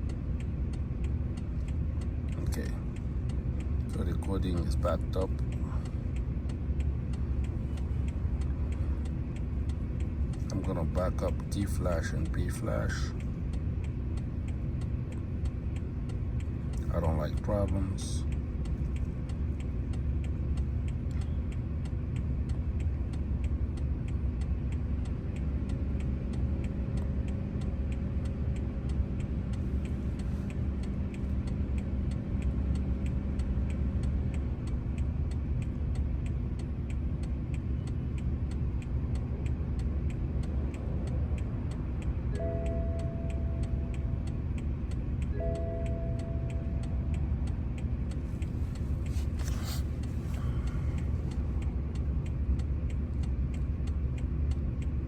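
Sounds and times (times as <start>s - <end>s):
low hum: 0.0s - 55.0s
short beeps: 42.3s - 43.9s, 45.4s - 46.8s.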